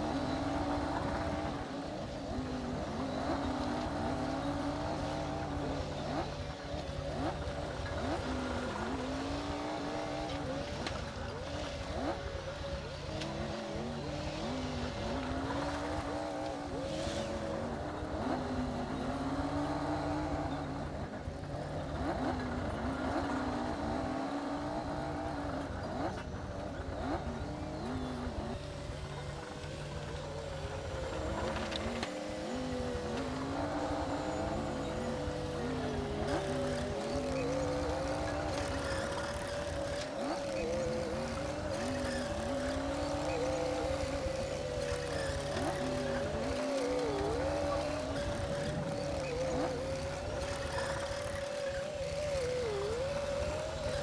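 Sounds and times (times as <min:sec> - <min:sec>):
bulldozer diesel engine under load: 0:00.0 - 0:54.0.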